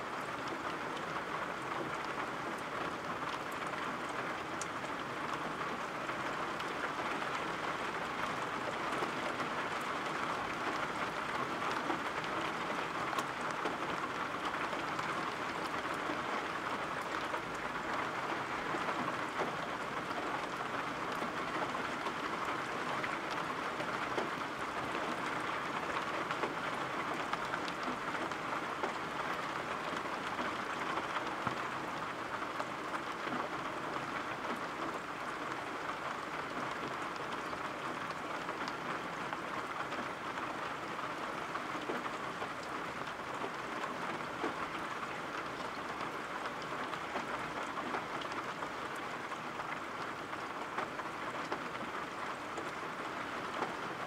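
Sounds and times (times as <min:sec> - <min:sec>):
steady rainfall: 0:00.0 - 0:54.0.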